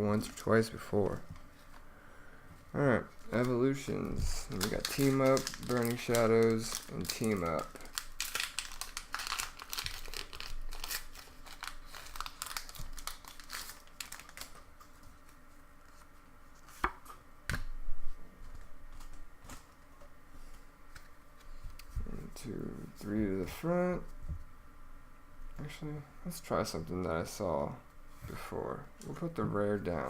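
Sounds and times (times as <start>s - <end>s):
foil wrapper crinkling and tearing: 3.0s - 16.0s
cards being handled: 3.1s - 17.7s.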